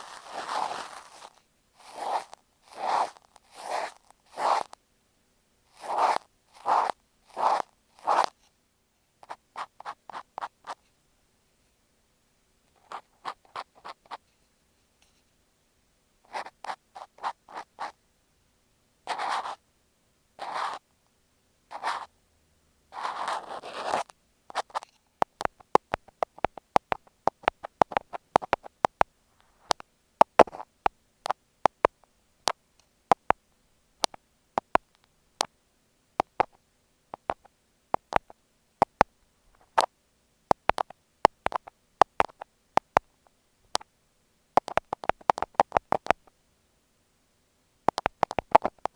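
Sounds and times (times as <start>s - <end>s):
cotton swab rubbing microphone: 0.0s - 4.8s, 5.7s - 8.4s, 9.2s - 10.8s, 16.3s - 18.0s, 19.1s - 19.6s, 20.4s - 20.9s, 21.7s - 22.1s, 23.0s - 24.9s, 25.5s - 31.4s, 40.5s - 43.1s, 44.6s - 46.3s, 47.9s - 48.9s
thumbtacks clicking on microphone: 44.6s - 46.3s, 47.9s - 48.9s.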